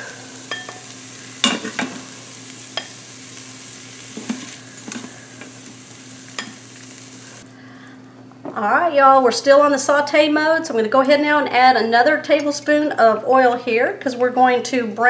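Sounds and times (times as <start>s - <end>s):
vegetables sizzling in hot oil: 0.0s - 7.4s.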